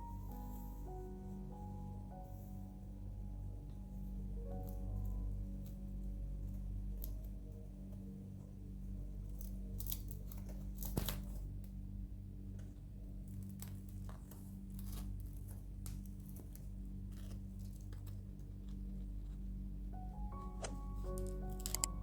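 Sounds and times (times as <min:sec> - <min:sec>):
steady low hum: 0:00.0 - 0:22.0
bread crust crackling: 0:08.8 - 0:11.9, 0:12.5 - 0:19.9.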